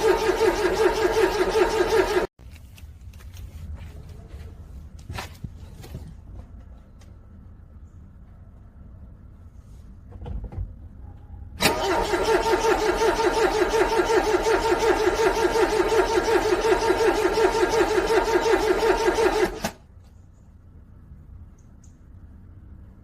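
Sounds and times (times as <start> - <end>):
car starter cranking engine: 0.0 - 2.3, 11.6 - 19.8.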